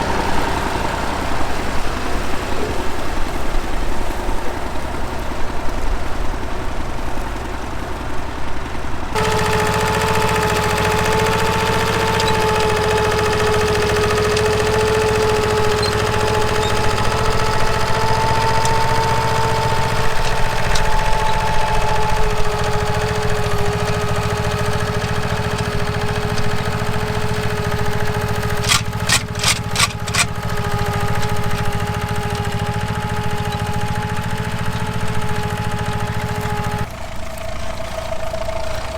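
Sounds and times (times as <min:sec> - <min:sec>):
tractor engine running: 0:00.0 - 0:38.9
sharp clicks: 0:09.2 - 0:36.9
steady whine: 0:09.2 - 0:38.9.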